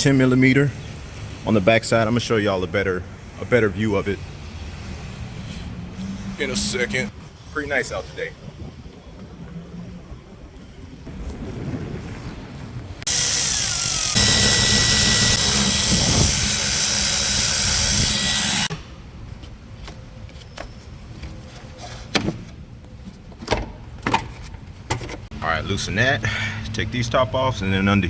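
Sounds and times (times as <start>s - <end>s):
power tool running: 13.0s - 18.9s.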